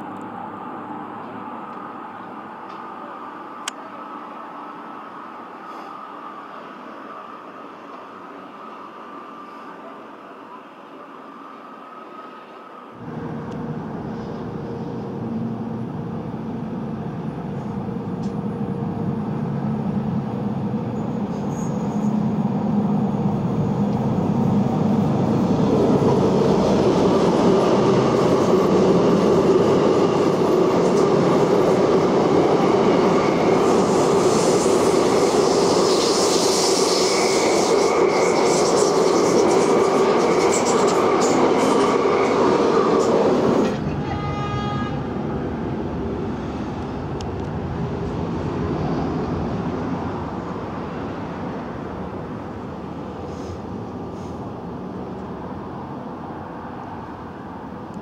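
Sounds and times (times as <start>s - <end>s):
electric train rumble: 0.0s - 58.0s
hiss of wheels on rail: 5.3s - 15.8s, 23.8s - 44.6s, 46.0s - 55.4s.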